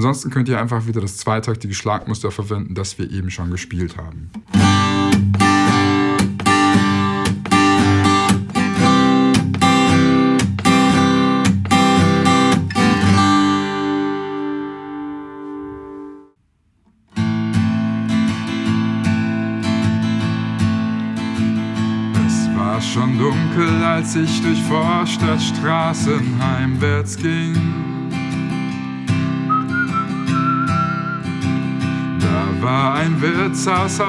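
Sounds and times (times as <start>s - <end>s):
acoustic guitar strumming: 4.4s - 16.4s, 17.1s - 34.0s.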